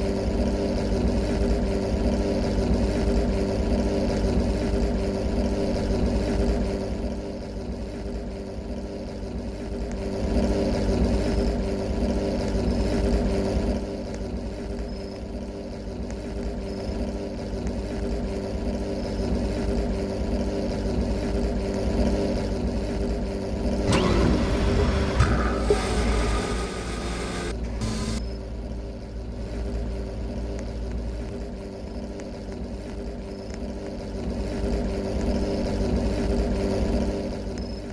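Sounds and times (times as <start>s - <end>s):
car engine humming: 21.0s - 32.8s
sudden loud noise: 23.9s - 28.2s.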